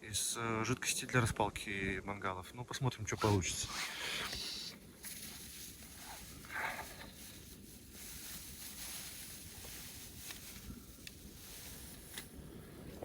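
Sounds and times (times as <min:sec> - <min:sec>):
handling rustles: 0:03.2 - 0:13.0.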